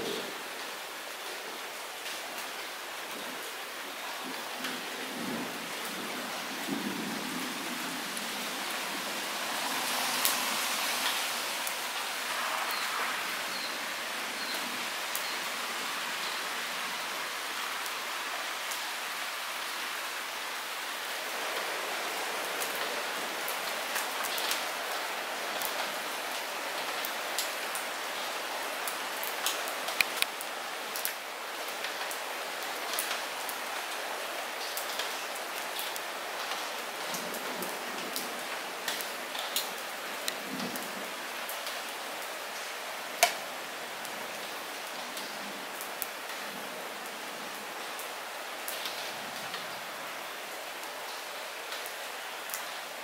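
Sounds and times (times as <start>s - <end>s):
light rain hiss: 0.0s - 53.0s
raindrops ticking: 29.4s - 31.2s, 43.2s - 43.5s.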